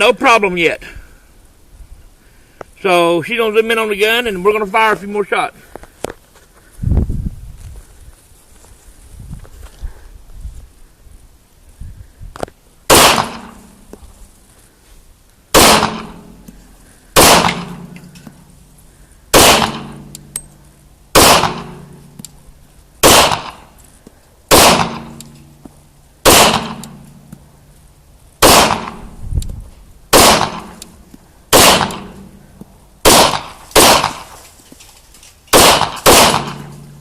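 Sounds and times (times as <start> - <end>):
pistol shots echoing: 12.9 - 13.7, 15.5 - 16.5, 17.2 - 18.2, 19.3 - 20.3, 21.1 - 22.0, 23.0 - 23.7, 24.5 - 25.4, 26.2 - 27.1, 28.4 - 29.1, 30.1 - 30.9, 31.5 - 32.4, 33.0 - 34.3, 35.5 - 37.0.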